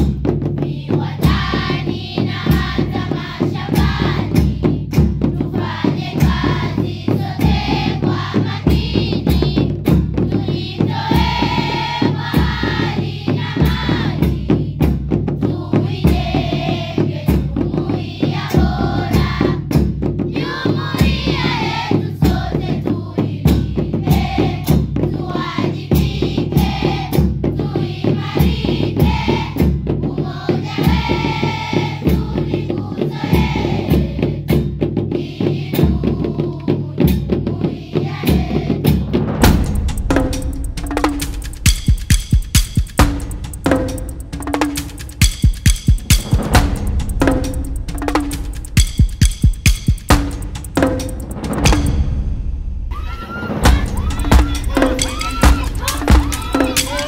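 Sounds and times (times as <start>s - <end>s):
choir-like singing voices: 0.6s - 57.0s
drum kit and bass beat: 5.7s - 12.9s, 39.1s - 57.0s.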